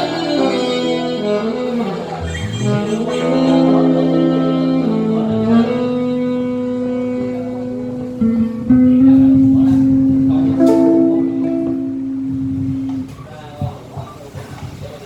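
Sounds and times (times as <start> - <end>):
saxophone holding long notes: 0.0 - 13.5
acoustic guitar accompaniment: 0.0 - 15.0.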